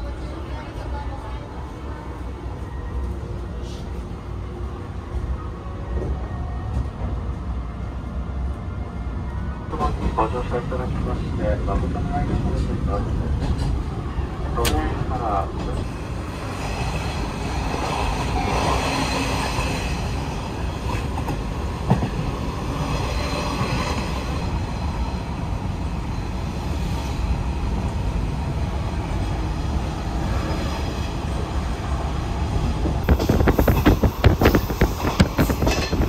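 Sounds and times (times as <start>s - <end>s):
train wheels rumbling on rails: 9.7s - 36.0s.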